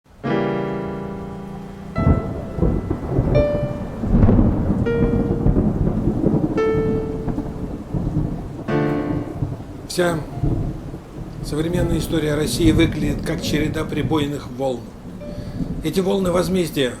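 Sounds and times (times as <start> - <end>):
low chord: 0.1 - 11.2
rain: 0.1 - 17.0
held descending notes: 0.2 - 7.9
thunder rumbling: 0.5 - 17.0.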